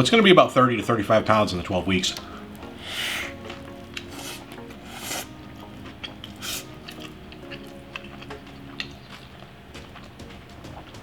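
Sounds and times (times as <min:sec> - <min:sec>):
quiet background music: 0:00.0 - 0:11.0
chewing with wet mouth clicks: 0:02.1 - 0:10.2.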